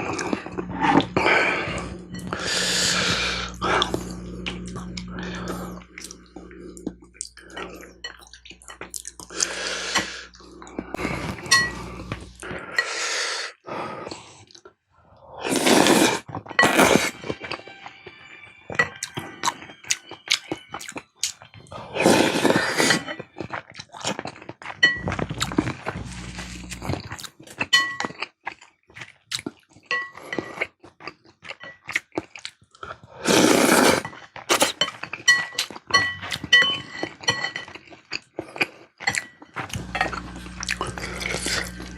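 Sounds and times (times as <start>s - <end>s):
slurping: 0.0s - 17.2s, 19.0s - 27.5s, 33.1s - 35.0s, 38.4s - 41.9s
wet chewing: 19.0s - 41.9s.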